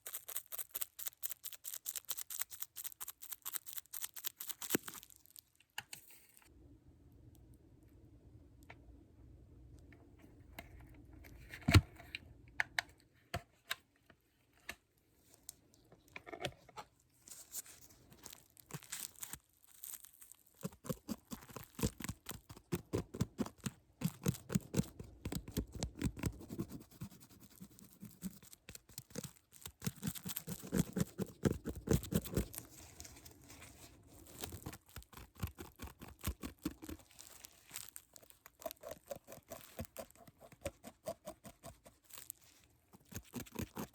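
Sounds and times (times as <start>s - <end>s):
crinkling: 0.0s - 6.5s, 15.2s - 26.8s, 27.4s - 43.9s
scratching: 17.2s - 43.9s.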